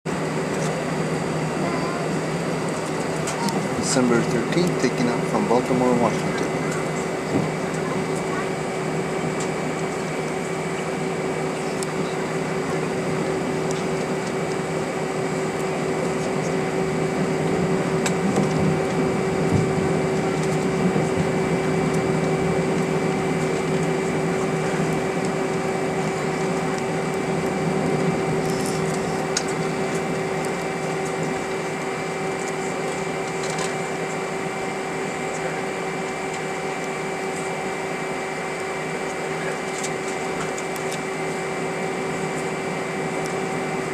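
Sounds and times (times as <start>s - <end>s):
airplane cabin drone: 0.1s - 43.9s
steady whining tones: 0.1s - 43.9s.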